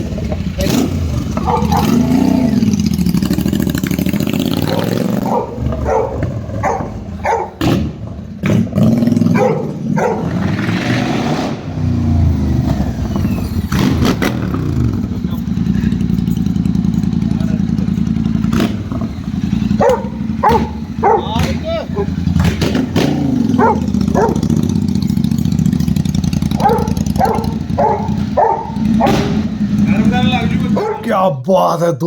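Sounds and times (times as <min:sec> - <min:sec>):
exhaust cracks: 0:00.0 - 0:31.2
motorcycle engine revving: 0:00.0 - 0:31.2.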